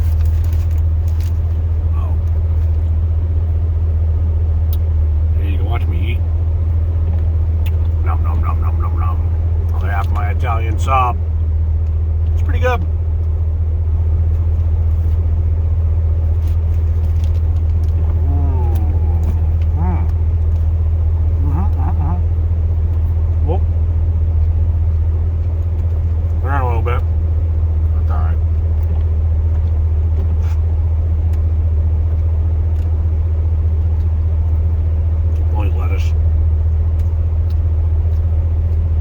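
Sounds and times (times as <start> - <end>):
engine running low drone: 0.0 - 39.0.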